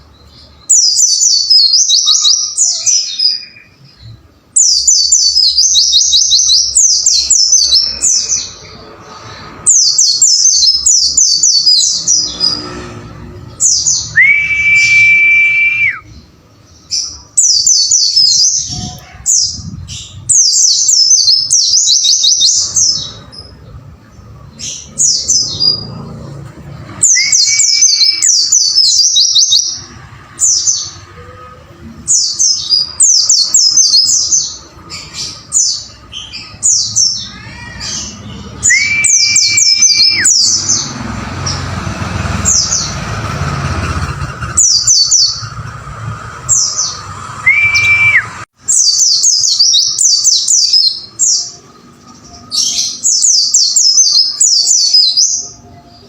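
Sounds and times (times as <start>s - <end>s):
bird chirping rapidly: 4.6s - 8.7s, 27.0s - 31.0s, 32.1s - 51.6s
bird rising whistles: 14.1s - 16.1s, 38.7s - 40.3s, 47.4s - 48.4s.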